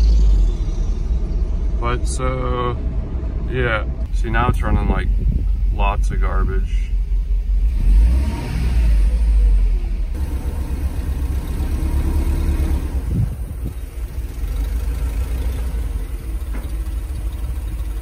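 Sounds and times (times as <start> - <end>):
car engine running poorly: 7.1 - 18.0.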